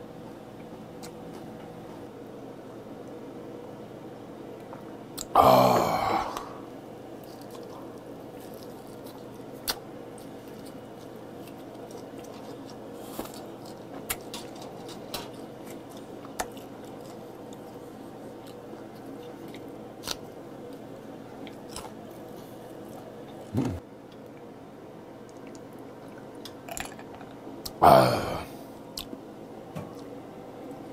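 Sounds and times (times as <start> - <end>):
steady background hum: 0.0 - 30.9
person chewing meat: 7.2 - 23.5.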